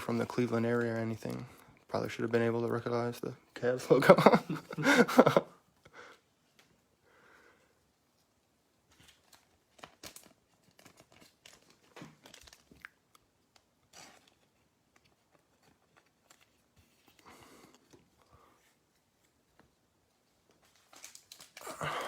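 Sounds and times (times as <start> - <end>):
cards rustling: 0.0 - 2.3, 8.9 - 22.0
wrapper crinkling and tearing: 8.9 - 17.3, 20.5 - 22.0.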